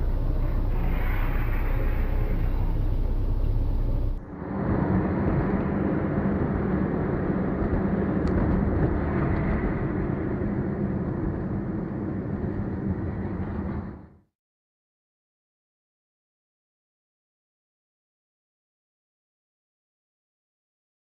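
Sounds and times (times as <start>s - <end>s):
low hum: 0.0s - 14.0s
car engine and road noise: 0.0s - 14.1s.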